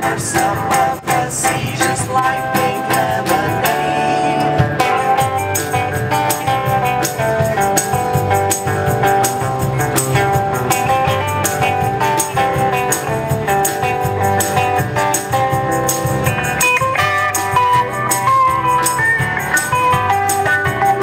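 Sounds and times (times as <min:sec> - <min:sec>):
drums beat: 0:00.0 - 0:21.0
electric guitar: 0:00.0 - 0:21.0
live band playing: 0:00.0 - 0:21.0.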